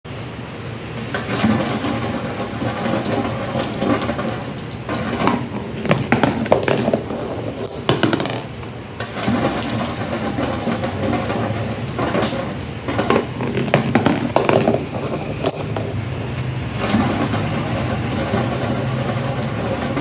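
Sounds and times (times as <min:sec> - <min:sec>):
marbles rolling down a track: 0:01.2 - 0:20.0.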